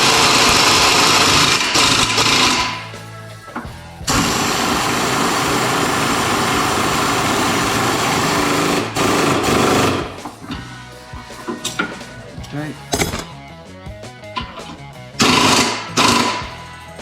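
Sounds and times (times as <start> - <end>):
power tool running: 0.0 - 3.0, 4.1 - 10.7, 15.2 - 16.6.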